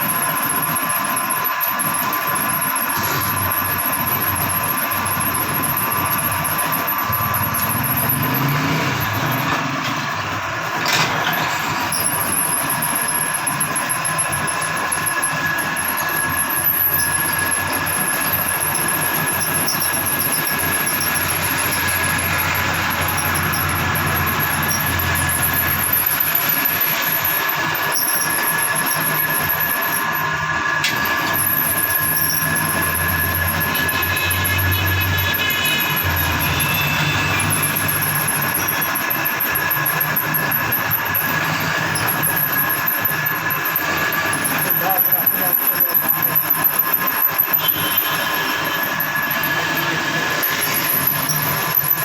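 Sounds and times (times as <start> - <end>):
power tool whining and grinding: 10.8 - 52.0.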